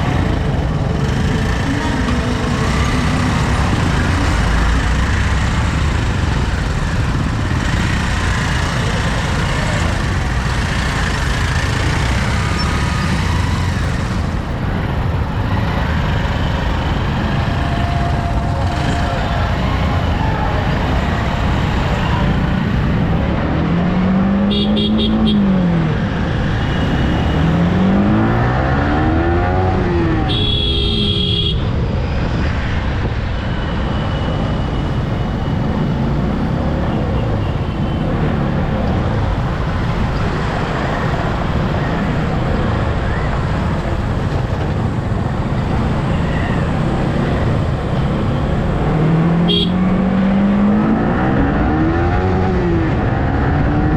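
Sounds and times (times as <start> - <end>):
motorcycle engine revving: 0.0 - 25.5
wind and road noise: 0.0 - 53.9.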